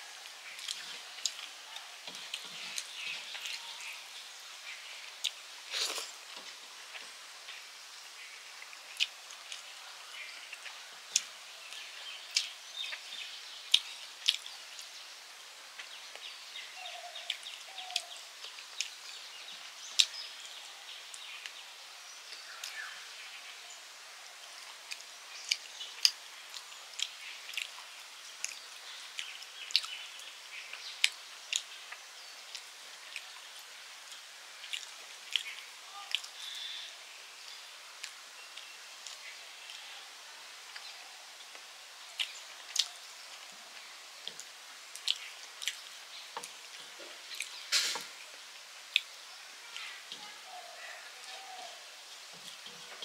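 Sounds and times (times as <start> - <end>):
faint steady hiss: 0.0 - 53.0
person chewing with mouth clicks: 42.2 - 42.9.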